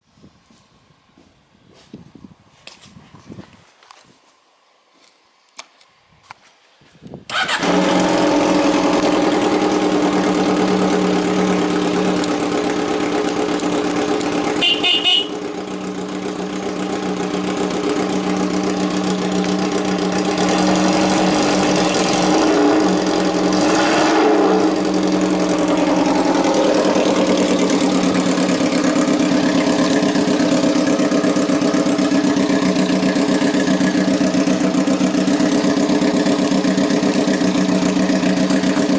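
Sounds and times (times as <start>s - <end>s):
motorcycle engine idling: 7.4s - 23.7s, 24.6s - 38.9s.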